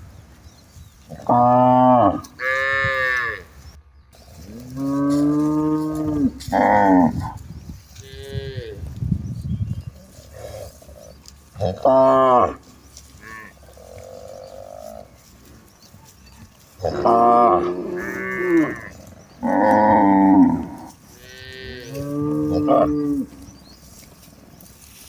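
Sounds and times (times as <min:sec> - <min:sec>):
cattle mooing: 0:01.2 - 0:03.4, 0:04.6 - 0:07.4, 0:10.2 - 0:12.6, 0:16.8 - 0:23.5.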